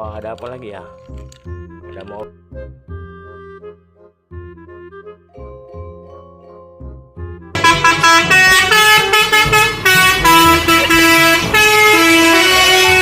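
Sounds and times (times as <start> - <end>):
soft background music: 0.0 - 13.0
vehicle horn sound effect: 7.6 - 13.0.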